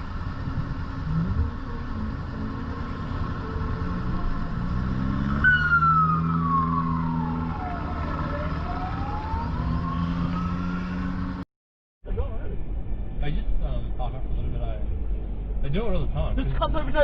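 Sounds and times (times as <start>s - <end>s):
emergency siren wailing: 0.0s - 11.4s
car engine and road rumble: 0.0s - 17.0s.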